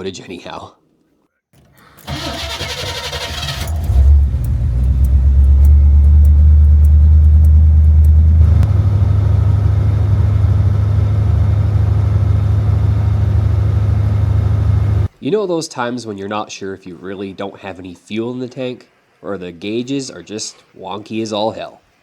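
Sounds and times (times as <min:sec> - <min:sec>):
car engine starting and idling: 0:02.0 - 0:15.1.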